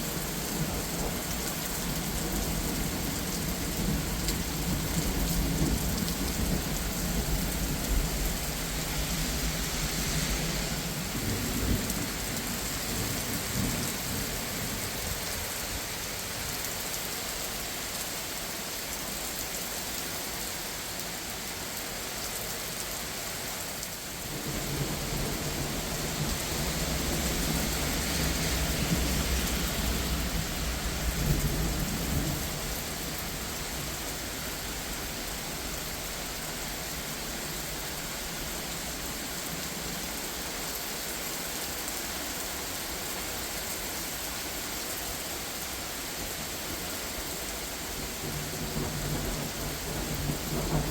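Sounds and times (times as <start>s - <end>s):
heavy rain hissing: 0.0s - 50.9s.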